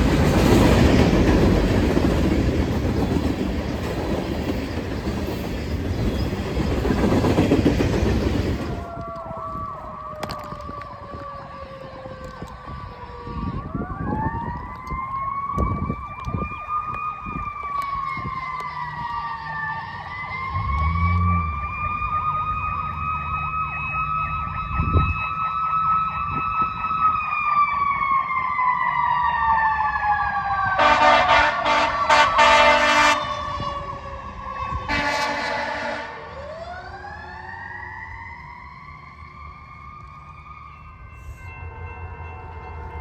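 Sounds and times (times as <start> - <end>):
emergency siren wailing: 6.5 - 43.0
air horn blasts: 30.8 - 34.0, 34.8 - 36.3.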